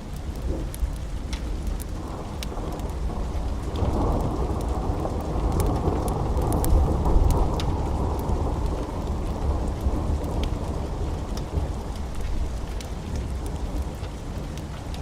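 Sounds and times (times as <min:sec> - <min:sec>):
fireplace crackles: 0:00.0 - 0:15.0
steady rain: 0:00.0 - 0:15.0
rolling thunder rumble: 0:01.9 - 0:14.6.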